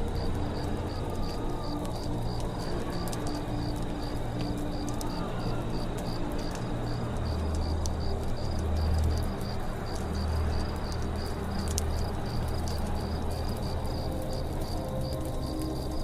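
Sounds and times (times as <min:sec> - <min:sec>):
campfire crackling: 0:00.0 - 0:16.0
crickets chirping: 0:00.0 - 0:16.0.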